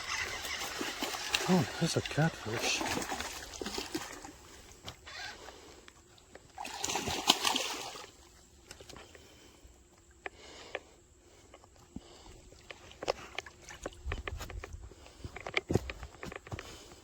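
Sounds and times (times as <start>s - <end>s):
fish splashing in water: 0.0s - 4.8s, 6.4s - 8.3s.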